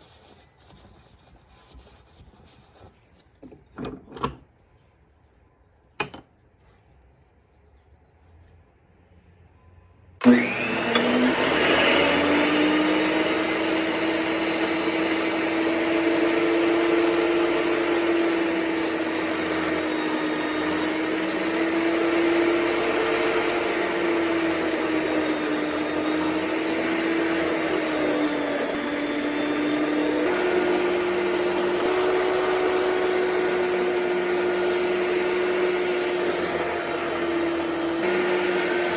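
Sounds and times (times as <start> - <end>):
electric power tool running: 10.2 - 38.9.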